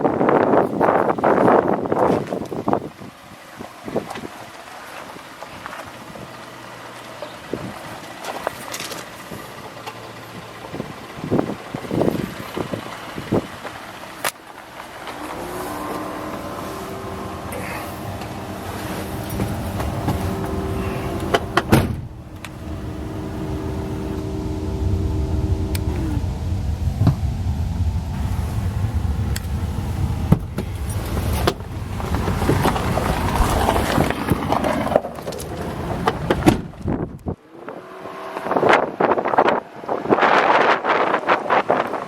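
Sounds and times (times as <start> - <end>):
engine idling: 3.1 - 37.4
rushing noise: 13.9 - 37.0.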